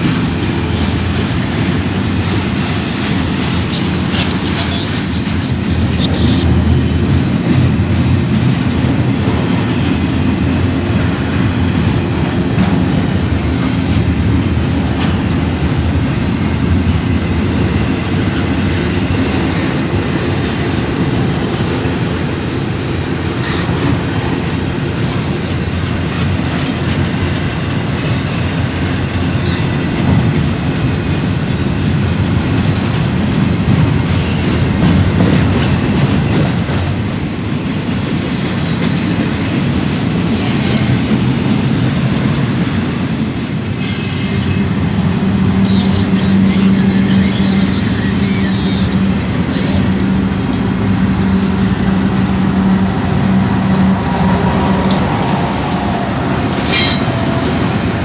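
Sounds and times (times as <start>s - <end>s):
railway cars rolling past: 0.0s - 58.0s
wheel squeal: 27.9s - 37.0s, 43.8s - 58.0s.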